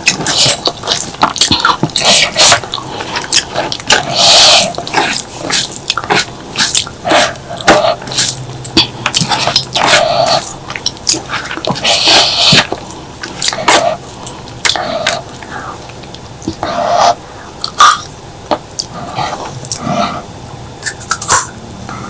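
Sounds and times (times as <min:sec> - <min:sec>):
wet chewing: 0:00.0 - 0:21.5
slurps: 0:00.1 - 0:14.0.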